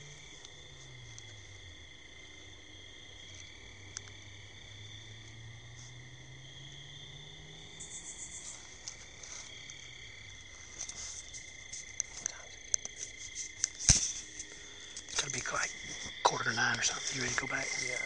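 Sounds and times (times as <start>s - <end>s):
crickets and insects trilling: 0.0s - 18.0s
faint low hum: 0.0s - 18.0s
light clicks and crackles: 10.7s - 18.0s.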